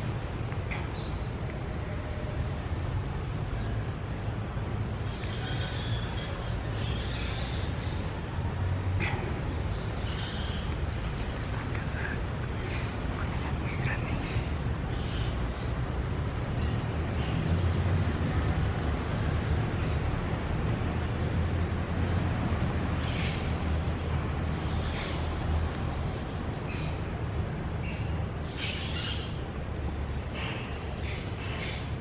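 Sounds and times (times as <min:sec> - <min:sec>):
birds chirping: 0:05.0 - 0:21.2
steady low rumble: 0:06.2 - 0:28.5.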